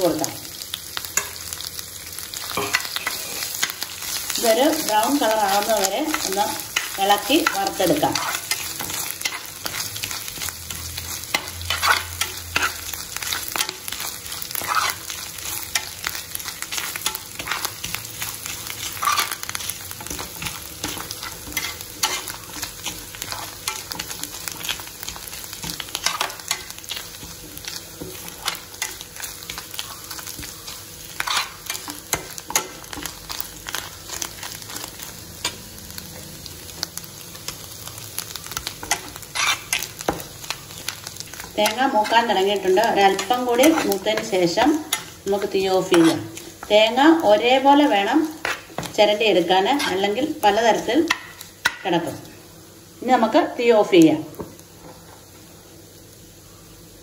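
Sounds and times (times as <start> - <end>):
food sizzling in hot oil: 0.0 - 57.0
metal spoon scraping pan: 5.4 - 15.9, 16.5 - 27.3, 28.0 - 33.1, 38.8 - 40.2, 41.4 - 46.4.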